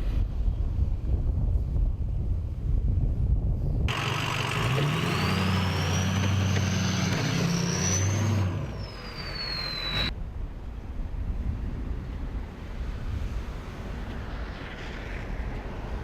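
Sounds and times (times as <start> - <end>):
wind noise: 0.0 - 16.0
truck engine driving by: 3.9 - 10.1.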